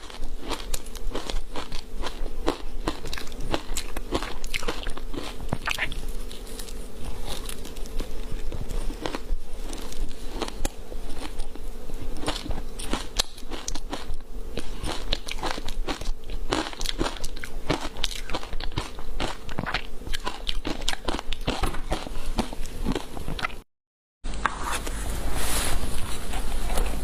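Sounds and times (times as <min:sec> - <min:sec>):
crunching frozen ice: 0:00.0 - 0:11.6.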